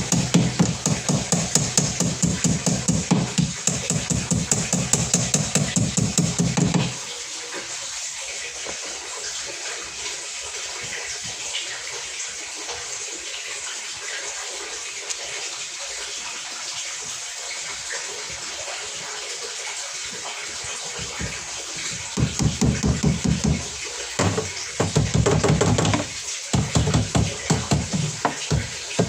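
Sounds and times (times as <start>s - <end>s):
stream of running water: 0.0s - 29.0s.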